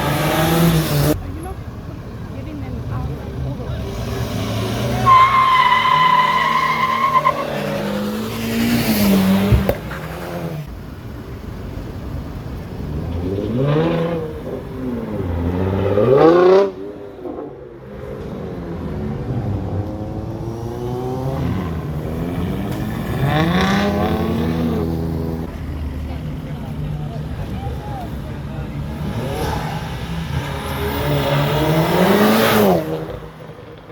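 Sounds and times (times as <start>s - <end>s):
car engine revving: 0.0s - 1.5s, 12.7s - 33.9s
tyre squeal: 5.0s - 8.0s.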